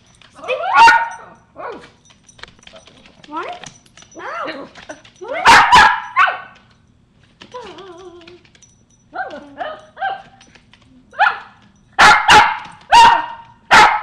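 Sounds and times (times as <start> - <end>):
dog barking: 0.5 - 1.3, 5.4 - 6.6, 9.2 - 10.4, 11.2 - 14.0
dog whining: 7.4 - 10.3.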